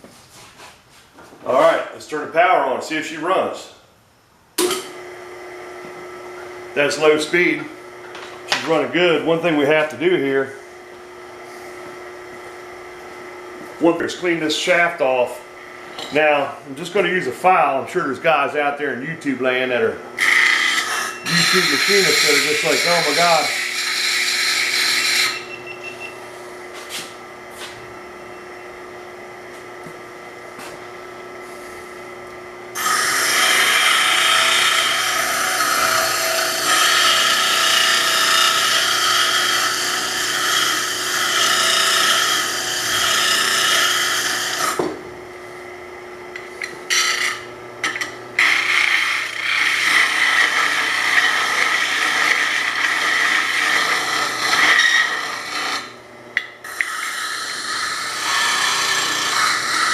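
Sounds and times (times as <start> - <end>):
steady electric hum: 0.0 - 59.9
metal file rasping on steel: 20.2 - 25.4, 32.8 - 44.8, 46.9 - 55.9, 56.7 - 59.9.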